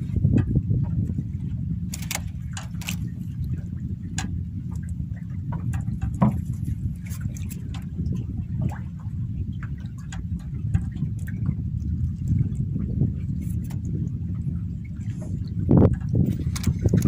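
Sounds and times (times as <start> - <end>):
boat low rumble: 0.0 - 17.0
water lapping: 0.0 - 17.0
clicks and knock: 5.5 - 6.5.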